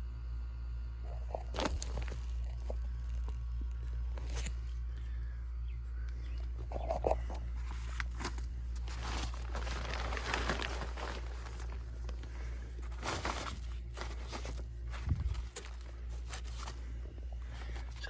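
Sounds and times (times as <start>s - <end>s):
steady low hum: 0.0s - 18.0s
rustling crinkling handling noise: 1.5s - 5.2s, 6.0s - 18.0s.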